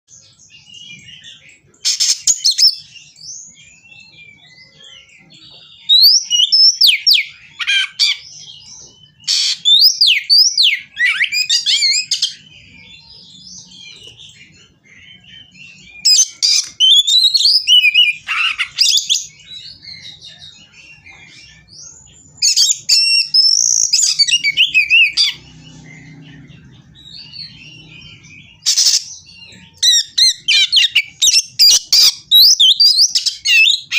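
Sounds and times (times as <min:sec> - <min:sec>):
bird singing varied whistles: 0:22.4 - 0:25.4.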